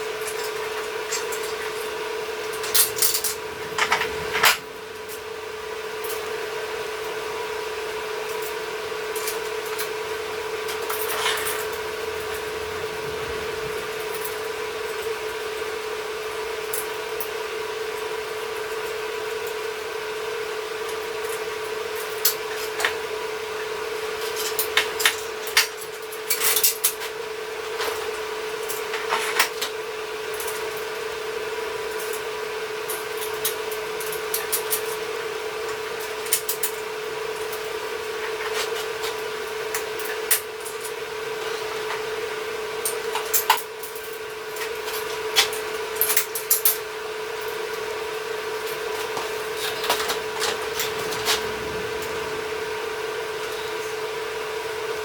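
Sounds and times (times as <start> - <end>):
steady electrical hum: 0.0 - 19.9, 46.0 - 55.0
hard parts clinking and knocking: 2.6 - 5.2.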